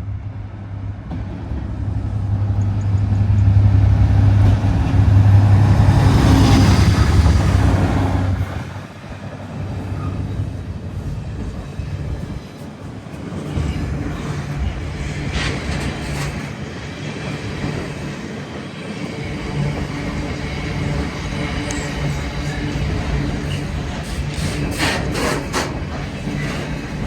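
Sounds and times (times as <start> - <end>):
train clanks: 0.0 - 27.0
train rumbling: 0.0 - 27.0.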